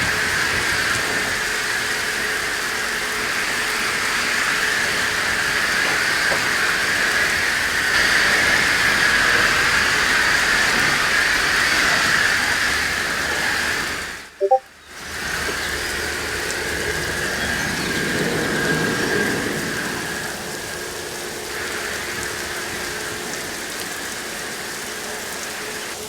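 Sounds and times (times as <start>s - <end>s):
short chirps: 14.4s - 14.6s.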